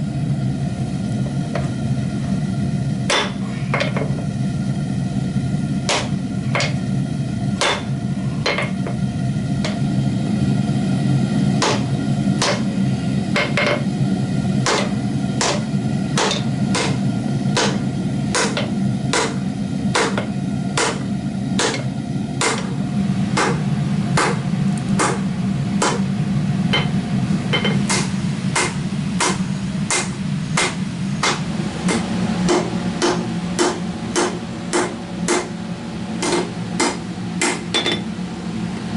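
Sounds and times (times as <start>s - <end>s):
steady low roar: 0.0s - 37.4s
hammer striking metal: 3.1s - 4.2s, 5.9s - 6.8s, 7.6s - 9.0s, 11.6s - 12.7s, 13.4s - 13.9s, 14.6s - 22.8s, 23.4s - 23.6s, 24.2s - 24.4s, 25.0s - 25.2s, 25.8s - 26.1s, 26.7s - 35.5s, 36.2s - 38.1s.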